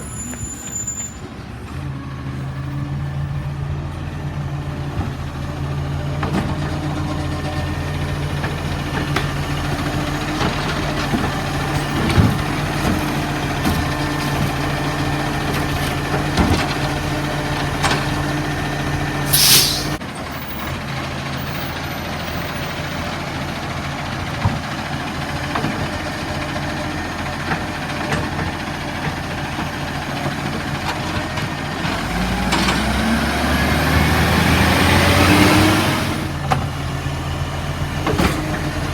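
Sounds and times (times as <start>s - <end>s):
diesel engine running: 1.6s - 38.9s
air hiss: 19.3s - 20.0s.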